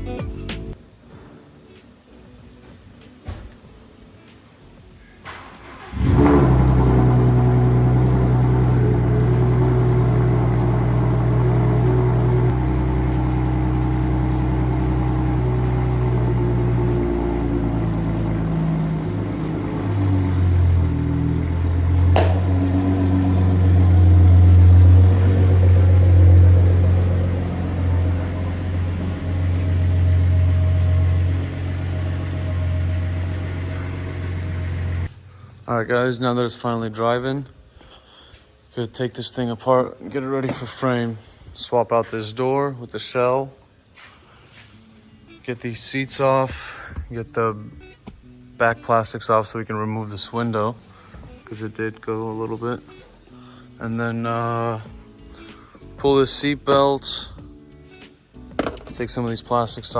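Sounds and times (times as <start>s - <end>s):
pickup truck engine running: 5.4s - 35.2s.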